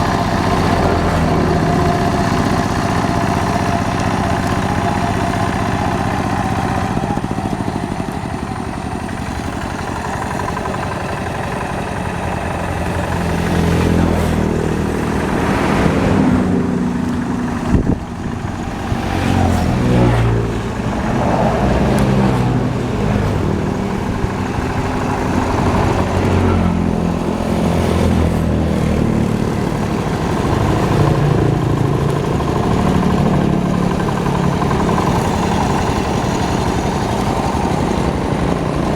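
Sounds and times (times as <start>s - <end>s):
hand tractor engine running: 0.0s - 38.9s.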